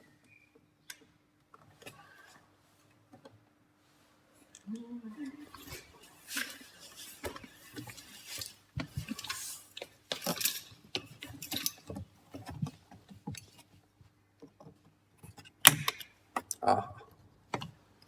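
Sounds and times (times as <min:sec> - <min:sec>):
tools clicking and knocking: 0:06.4 - 0:13.6, 0:14.4 - 0:16.6.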